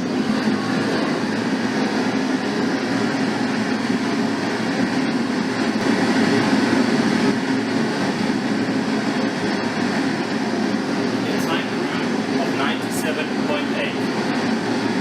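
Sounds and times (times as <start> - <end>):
pink noise from loudspeaker: 0.0 - 5.9, 10.6 - 15.0.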